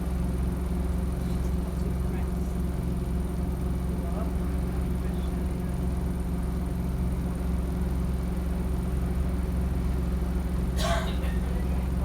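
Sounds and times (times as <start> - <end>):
bus diesel engine droning: 10.7 - 12.0.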